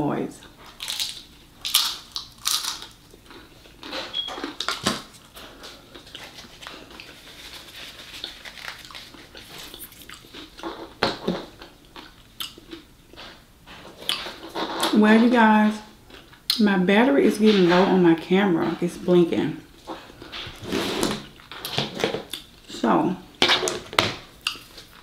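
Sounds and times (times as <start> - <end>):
close chewing and mouth sounds: 0.4 - 15.0, 16.0 - 16.6, 21.3 - 22.7, 24.4 - 25.0.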